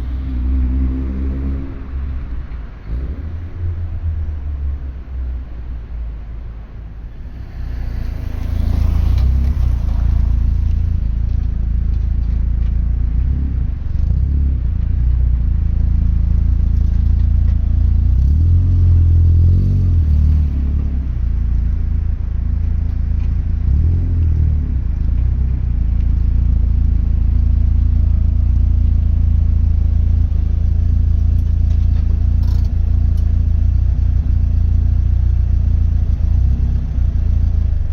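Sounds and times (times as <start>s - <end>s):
car engine revving: 7.0s - 14.6s.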